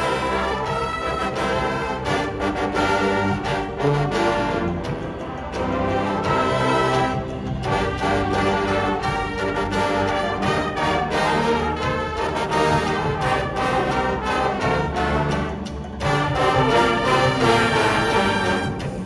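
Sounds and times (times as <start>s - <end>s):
brass ensemble playing chords: 0.0s - 19.0s.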